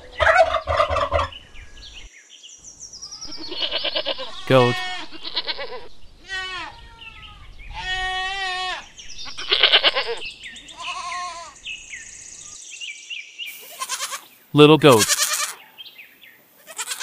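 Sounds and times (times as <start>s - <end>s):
smaller higher goat calls: 3.2s - 11.6s, 13.5s - 15.6s, 16.6s - 17.0s
goats bleating: 3.3s - 6.8s, 7.8s - 11.6s, 13.6s - 15.6s, 16.6s - 17.0s.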